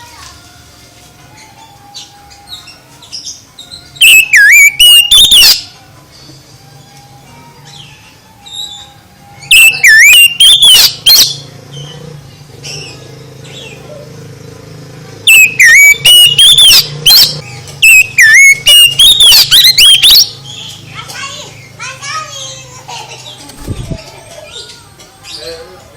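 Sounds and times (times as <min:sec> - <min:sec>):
bird singing whistled phrases: 0:04.0 - 0:05.7, 0:09.4 - 0:11.4, 0:15.3 - 0:20.4.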